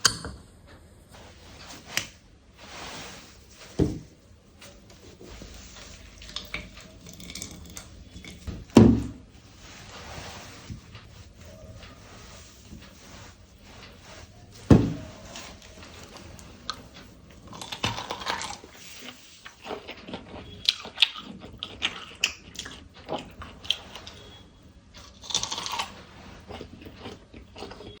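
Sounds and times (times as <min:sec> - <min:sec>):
rustling: 0:01.2 - 0:07.0, 0:07.8 - 0:19.6
corn crunching and clicking: 0:17.4 - 0:24.2, 0:25.0 - 0:28.0.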